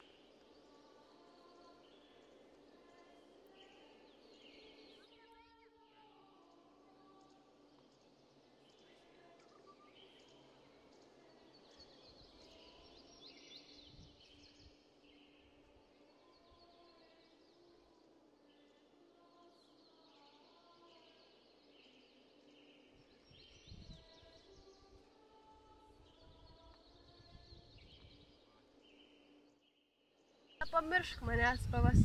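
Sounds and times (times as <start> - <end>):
small birds chirping: 0.0 - 32.0
low rumble: 31.2 - 32.0.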